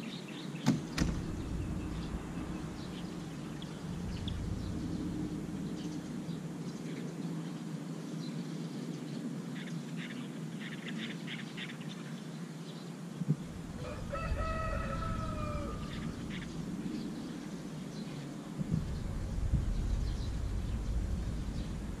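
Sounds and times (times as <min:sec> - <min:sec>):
low outdoor background noise: 0:00.0 - 0:22.0
deep rumble: 0:00.8 - 0:07.5, 0:13.3 - 0:17.8, 0:18.5 - 0:22.0
rooster crowing: 0:13.5 - 0:16.8.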